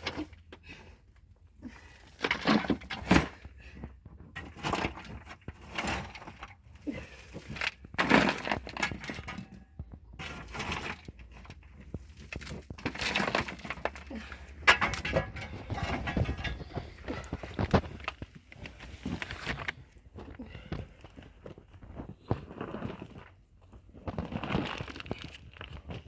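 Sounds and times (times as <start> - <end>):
hard material knocking and cracking: 7.5 - 18.4.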